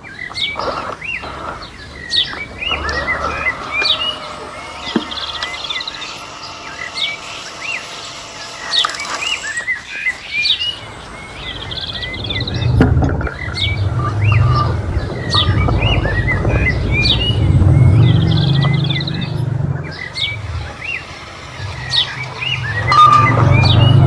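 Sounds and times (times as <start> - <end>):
small birds chirping: 0.0 - 24.0
low rumble: 10.8 - 24.0.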